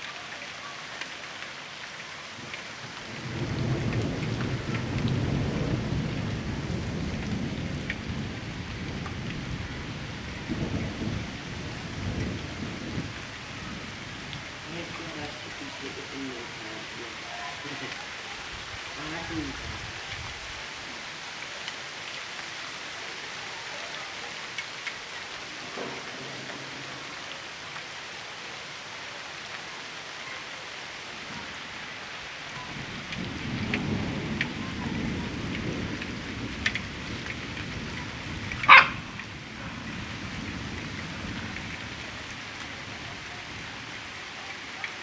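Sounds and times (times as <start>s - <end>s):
rain falling: 0.0s - 45.0s
dog barking: 38.6s - 39.8s.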